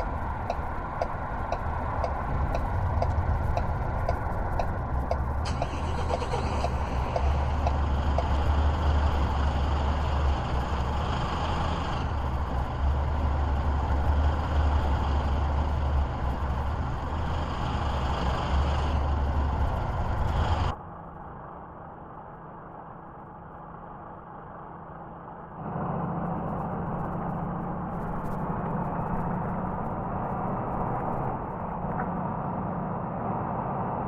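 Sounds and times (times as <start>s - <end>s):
faint regular ticking: 0.0s - 20.7s
vehicle engine and road rumble: 0.0s - 34.0s.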